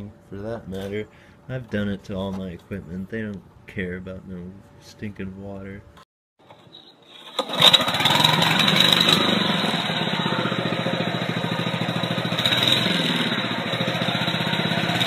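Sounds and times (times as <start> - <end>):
lawn mower engine starting and running: 6.4 - 15.0.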